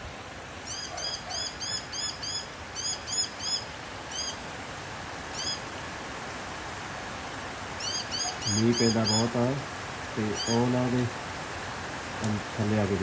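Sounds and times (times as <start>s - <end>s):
steady hiss: 0.0s - 13.0s
bird chirping: 0.6s - 4.4s, 7.8s - 9.4s, 10.3s - 10.8s.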